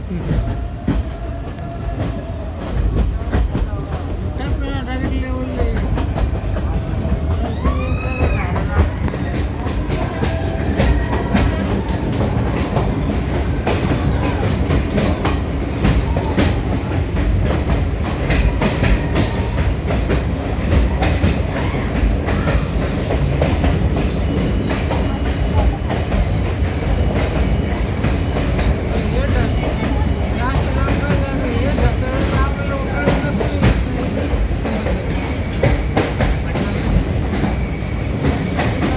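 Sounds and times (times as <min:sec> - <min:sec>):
train rumble inside carriage: 0:00.0 - 0:38.9
wheels clattering over rails: 0:02.0 - 0:38.9.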